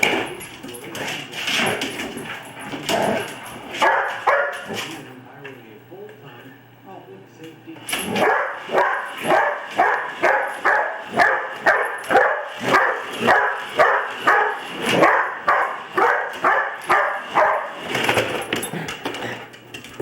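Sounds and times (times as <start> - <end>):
dog barking: 3.8 - 4.8, 8.2 - 17.8.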